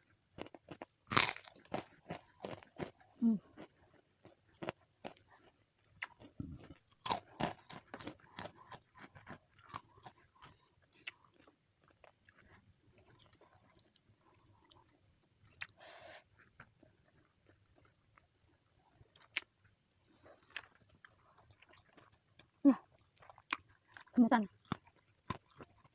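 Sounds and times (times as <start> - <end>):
person chewing crunchy food: 0.3 - 25.9.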